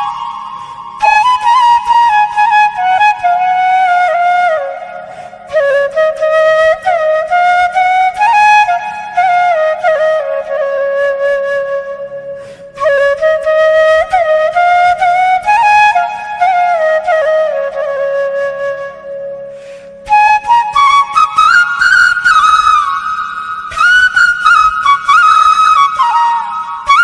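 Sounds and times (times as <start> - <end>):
flute melody: 0.0 - 27.0.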